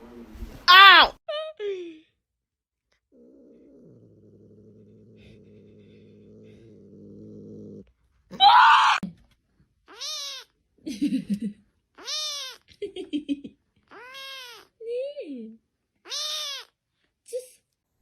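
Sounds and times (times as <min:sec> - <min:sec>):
cat purring: 0:03.0 - 0:08.0
cat harsh cry: 0:08.4 - 0:09.0, 0:09.9 - 0:10.5, 0:12.0 - 0:12.7, 0:13.9 - 0:14.7, 0:16.1 - 0:16.7
cat meowing: 0:09.9 - 0:10.6, 0:12.0 - 0:12.7, 0:13.9 - 0:14.7, 0:16.0 - 0:16.8.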